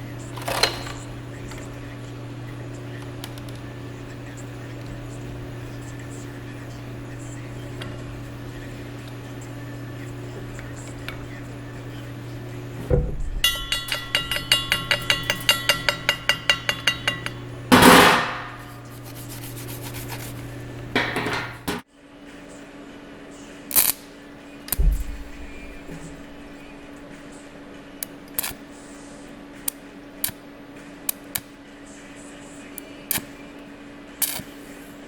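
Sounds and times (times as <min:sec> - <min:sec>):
steady machine hum: 0:00.0 - 0:35.0
hammer ringing on steel: 0:12.9 - 0:18.8.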